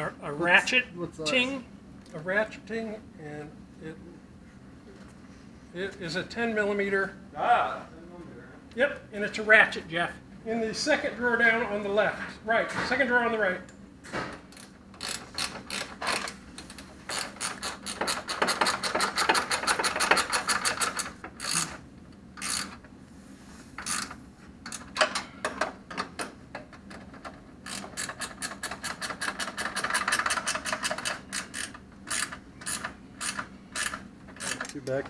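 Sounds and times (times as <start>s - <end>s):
socket ratchet clicking: 14.5s - 21.8s, 22.4s - 22.8s, 23.8s - 25.2s, 27.6s - 35.0s.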